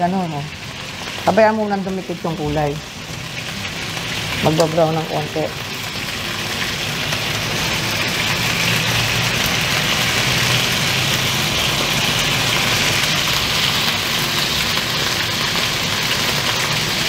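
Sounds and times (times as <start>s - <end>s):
chicken frying in hot oil: 0.0s - 17.0s.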